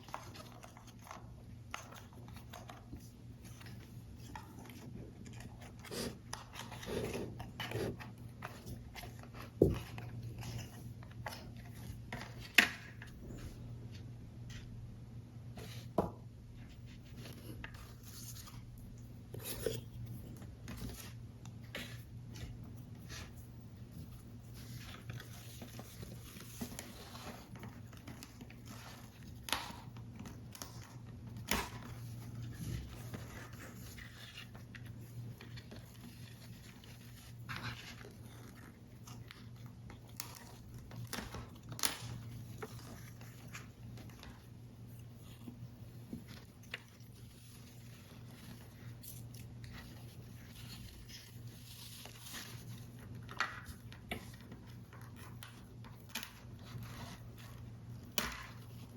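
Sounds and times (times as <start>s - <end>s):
paper rustling: 16.6s - 58.9s.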